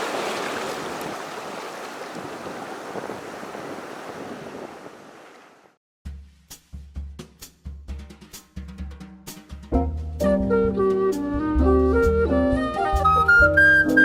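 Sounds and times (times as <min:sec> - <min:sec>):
ocean surf rushing: 0:00.0 - 0:05.7
drum beats: 0:06.1 - 0:10.5.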